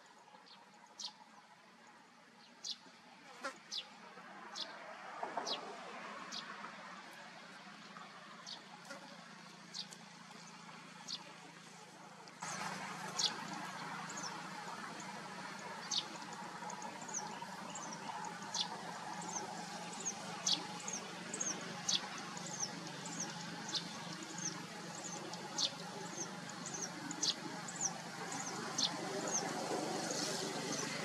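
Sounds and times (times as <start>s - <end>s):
small birds chirping: 8.4s - 11.8s, 12.4s - 31.0s.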